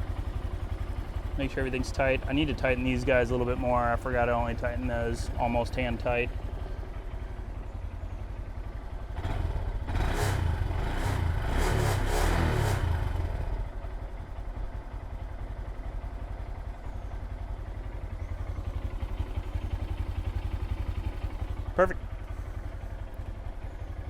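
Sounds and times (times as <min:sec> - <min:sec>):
engine clatter: 0:00.0 - 0:24.0
small engine idling: 0:00.0 - 0:24.0.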